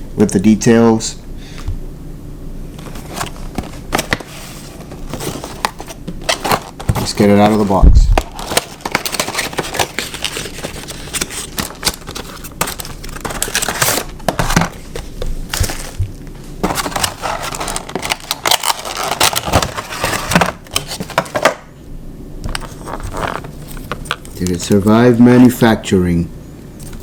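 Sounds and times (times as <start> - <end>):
cardboard and plastic packaging handled: 2.7 - 21.7, 22.4 - 25.6.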